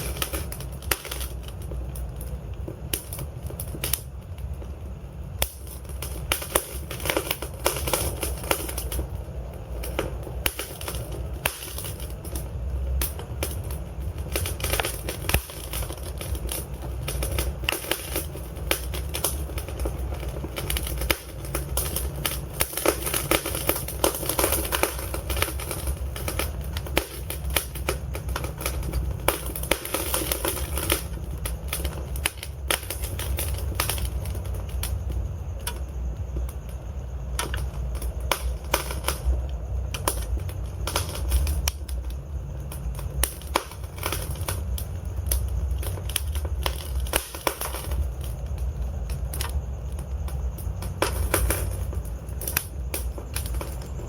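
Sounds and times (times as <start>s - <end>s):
logs crackling and popping: 0.0s - 54.0s
low rumble of flames: 0.0s - 54.0s.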